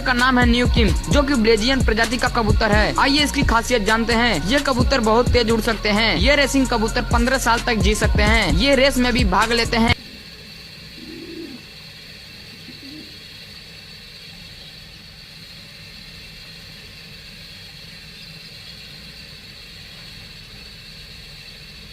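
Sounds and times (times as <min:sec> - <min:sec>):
background hum and hiss: 0:00.0 - 0:21.9
faint pigeon cooing: 0:10.0 - 0:11.8, 0:12.4 - 0:13.4.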